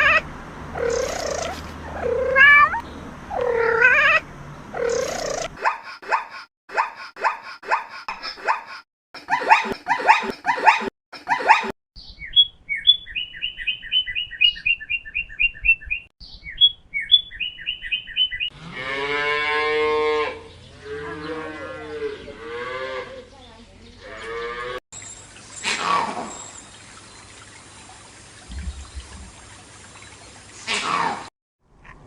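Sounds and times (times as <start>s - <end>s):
small bird chirping: 0.8s - 3.6s, 4.8s - 5.6s, 12.0s - 18.5s, 28.5s - 29.4s
dog barking: 9.3s - 11.7s
cow mooing: 18.5s - 23.2s, 24.0s - 24.8s.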